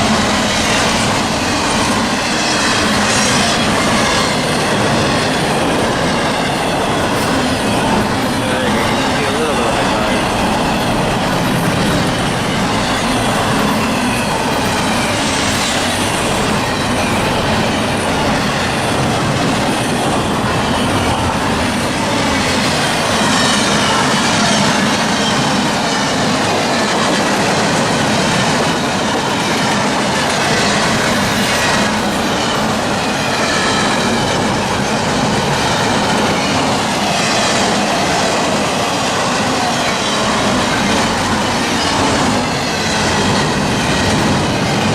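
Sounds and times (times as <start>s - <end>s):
high wheel squeal: 0.0s - 27.4s
freight train cars rolling past: 0.0s - 44.9s.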